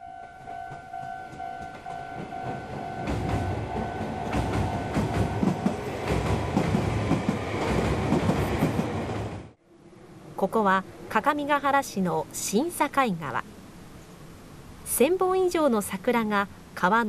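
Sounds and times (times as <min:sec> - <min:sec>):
level-crossing warning bell: 0:00.0 - 0:05.8
electric train rumbling: 0:00.0 - 0:13.8
train wheels clacking: 0:00.6 - 0:09.5.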